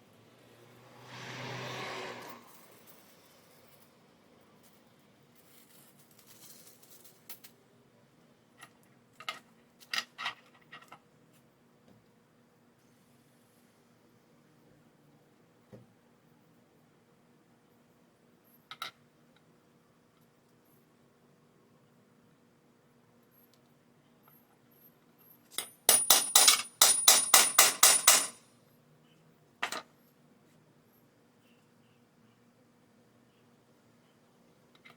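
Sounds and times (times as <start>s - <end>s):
hammer blows on metal tool: 25.9s - 28.4s.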